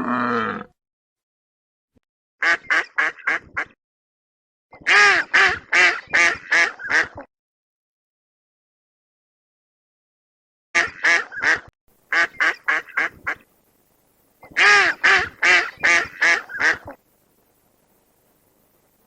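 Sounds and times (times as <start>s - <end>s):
bird quacking calls: 2.4s - 3.8s, 4.8s - 7.3s, 10.8s - 13.4s, 14.4s - 17.0s.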